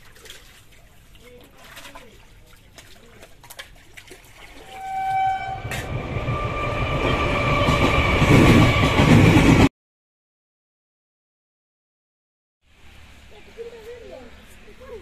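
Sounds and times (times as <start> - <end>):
train horn blast: 4.6 - 9.3
train wheels on rails: 5.1 - 9.7.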